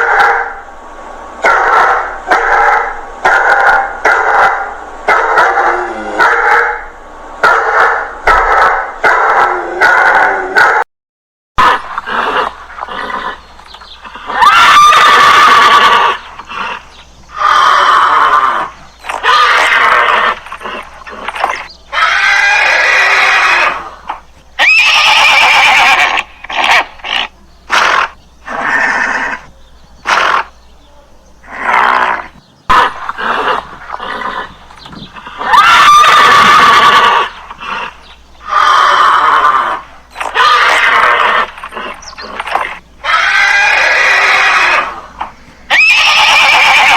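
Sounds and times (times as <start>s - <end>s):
horse whinnying: 11.6s - 13.4s, 14.0s - 29.5s, 31.5s - 46.9s
animal calls: 11.6s - 46.9s.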